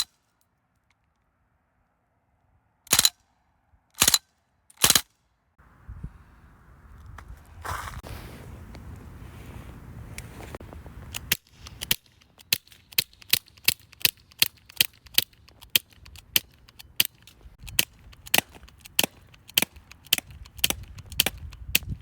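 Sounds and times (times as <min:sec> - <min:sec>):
bb pistol shots cracking: 0:02.9 - 0:03.2, 0:04.0 - 0:04.2, 0:04.8 - 0:05.1.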